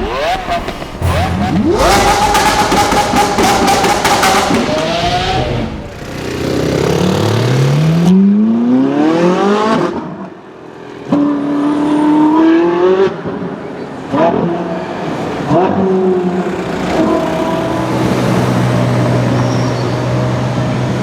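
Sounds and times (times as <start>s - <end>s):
sports car engine accelerating hard: 0.0s - 21.0s.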